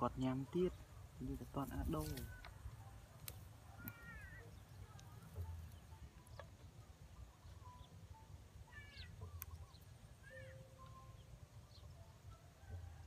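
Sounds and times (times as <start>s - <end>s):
short chirping bird calls: 3.7s - 12.0s.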